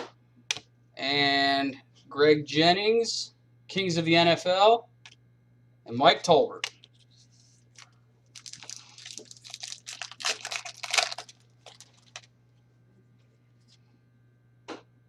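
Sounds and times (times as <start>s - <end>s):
wrapper crinkling and tearing: 7.7s - 12.4s.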